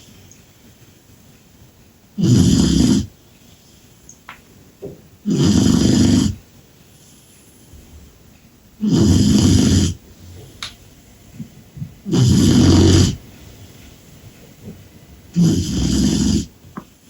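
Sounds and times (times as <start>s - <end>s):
puppy snoring: 2.2s - 3.2s, 5.2s - 6.4s, 8.8s - 11.0s, 11.8s - 13.9s, 15.2s - 16.7s.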